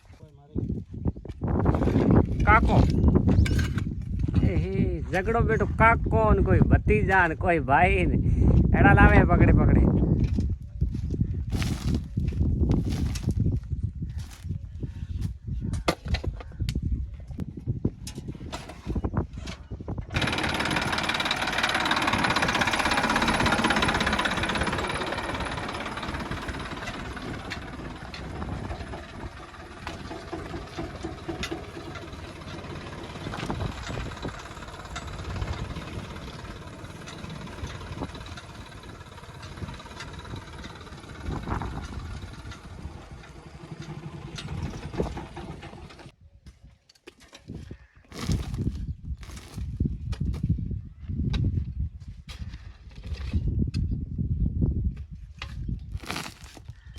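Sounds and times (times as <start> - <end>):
heavy diesel engine running: 20.1 - 46.2.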